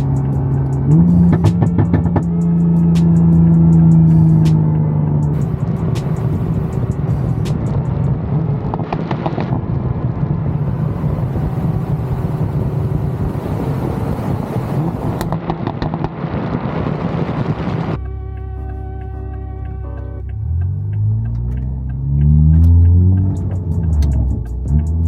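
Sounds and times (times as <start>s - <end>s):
exhaust crackling pops: 0.0s - 3.5s, 4.4s - 18.0s
music: 0.0s - 7.9s, 18.0s - 25.0s
car engine and exhaust droning: 0.0s - 25.0s.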